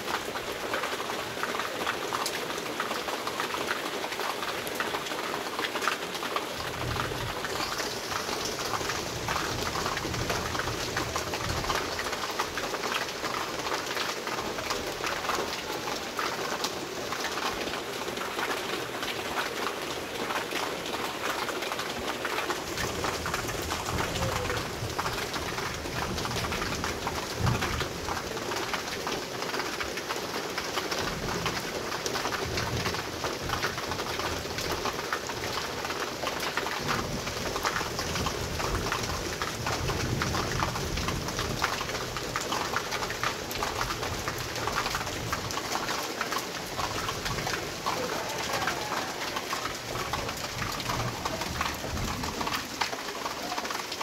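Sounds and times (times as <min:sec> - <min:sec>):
heavy rain hissing: 0:05.1 - 0:29.8, 0:36.8 - 0:54.0.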